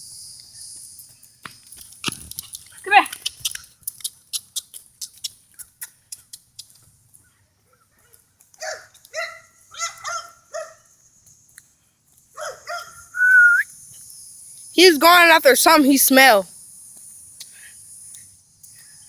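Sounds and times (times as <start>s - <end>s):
dog barking: 7.7s - 10.8s, 12.4s - 13.0s.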